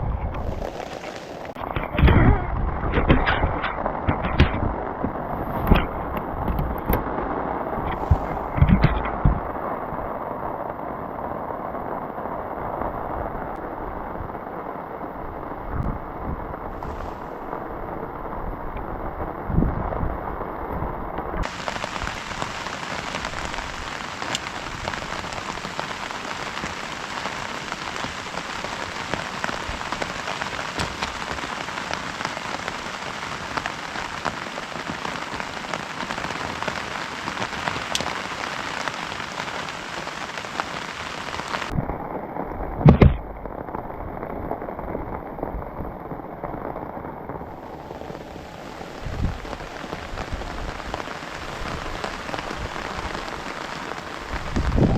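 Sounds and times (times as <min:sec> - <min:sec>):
heavy rain falling: 0:00.0 - 0:54.9
loud thump: 0:42.8 - 0:43.3.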